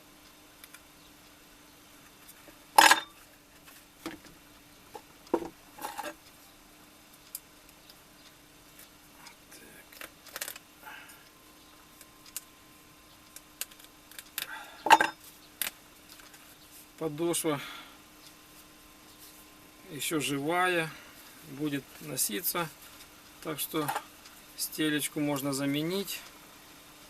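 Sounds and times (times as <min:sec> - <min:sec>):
faint steady hum: 0:00.0 - 0:27.0
metal tools clicking and clattering: 0:02.8 - 0:03.2, 0:14.9 - 0:15.2.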